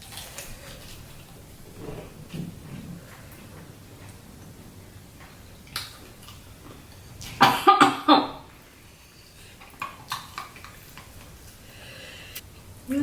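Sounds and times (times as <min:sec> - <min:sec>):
person coughing: 0:07.4 - 0:08.4
eating clicks: 0:09.6 - 0:11.6.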